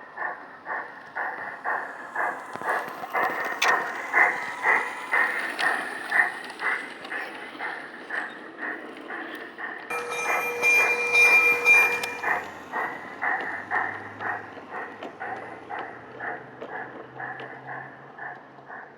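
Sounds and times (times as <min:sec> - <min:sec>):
model train running rhythmically: 0:00.0 - 0:18.9
steady high tone: 0:09.9 - 0:13.7.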